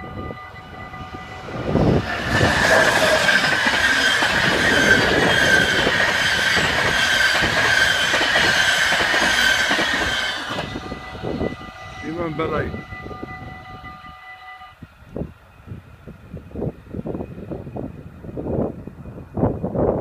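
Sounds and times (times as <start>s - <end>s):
train wheels on rails: 0.0s - 14.2s
crossing warning bells ringing: 0.0s - 14.9s
high wheel squeal: 0.7s - 14.0s.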